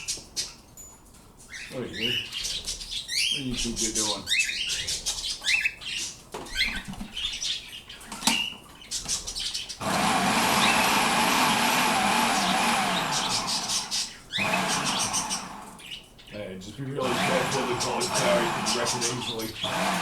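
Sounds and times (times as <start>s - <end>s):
pet bird chirping: 0.0s - 11.0s, 12.6s - 20.0s
electric kitchen chopper running: 9.8s - 15.9s, 17.0s - 20.0s.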